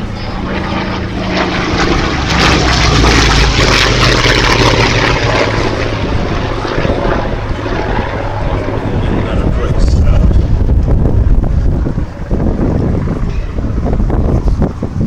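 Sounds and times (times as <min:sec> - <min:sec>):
aircraft radial engine flying past: 0:00.0 - 0:15.0.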